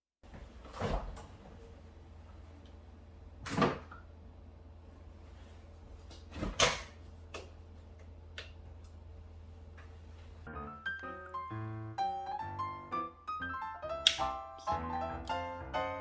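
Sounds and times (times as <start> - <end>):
steady low hum: 0.2 - 10.5.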